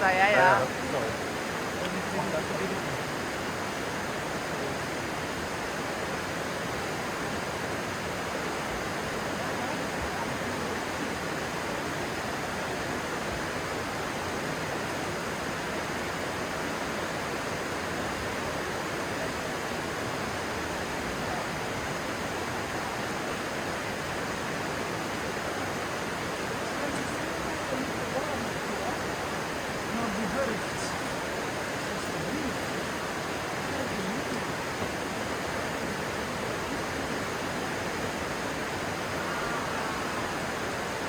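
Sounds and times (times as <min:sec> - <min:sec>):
stream flowing fast: 0:00.0 - 0:41.0.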